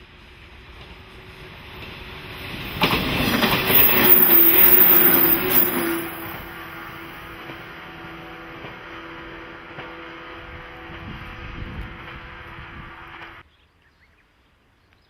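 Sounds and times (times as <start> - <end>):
train wheels clattering on rails: 0.6 - 11.1.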